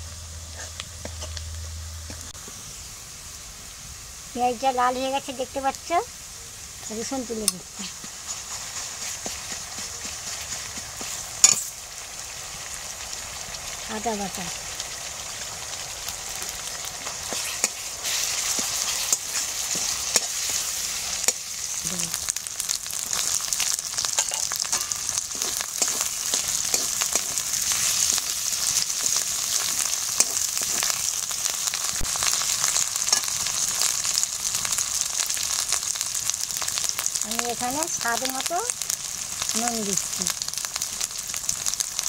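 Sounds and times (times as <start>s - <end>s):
food sizzling in hot oil: 0.0s - 42.0s
metal spatula scraping pan: 24.1s - 28.2s.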